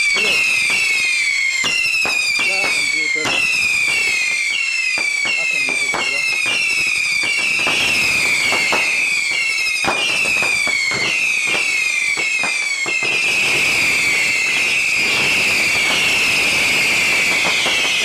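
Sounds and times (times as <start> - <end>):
firecracker cracks: 0.0 - 18.0
whistling fireworks: 0.0 - 18.0.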